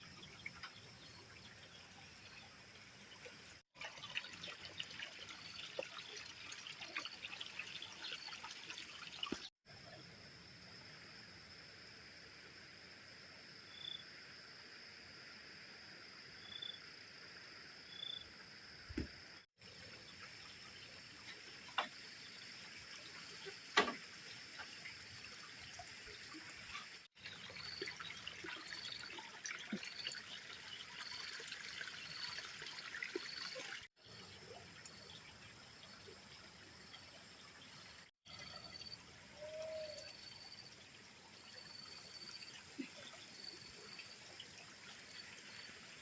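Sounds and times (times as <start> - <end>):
water trickling: 0.0 - 9.6, 19.6 - 46.0.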